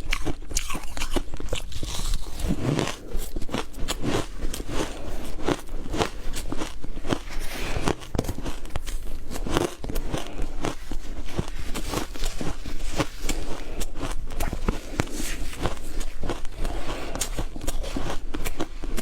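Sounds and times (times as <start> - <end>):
ice being chewed: 0.0 - 19.0.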